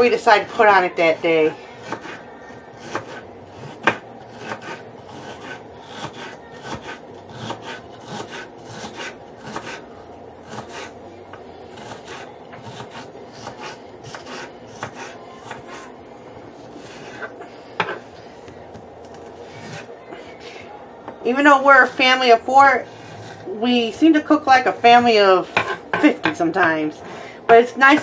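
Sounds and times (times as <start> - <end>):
knife cutting celery on board: 1.8 - 2.2, 2.8 - 9.8, 10.4 - 10.9, 11.7 - 15.9.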